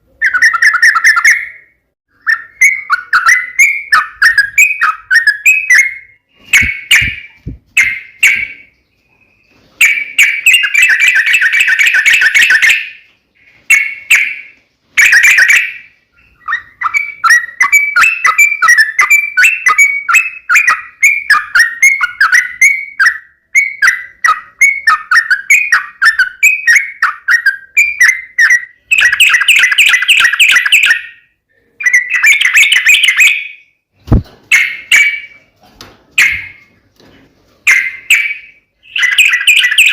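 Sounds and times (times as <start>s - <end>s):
bulbul calling: 0.2s - 35.4s, 36.2s - 36.7s, 37.7s - 39.9s.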